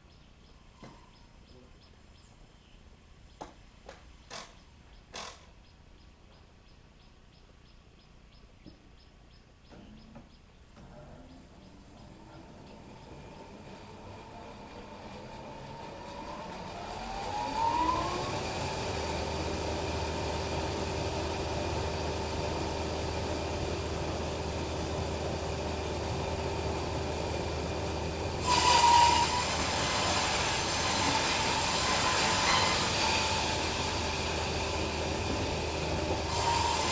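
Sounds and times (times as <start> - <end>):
bandsaw running with a hum: 12.0 - 36.9
saw blade cutting log: 28.4 - 36.9.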